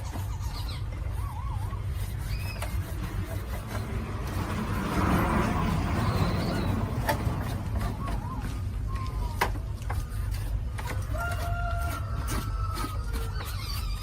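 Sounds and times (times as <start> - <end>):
birds chirping: 0.0 - 10.7
passing road vehicle: 2.7 - 9.3.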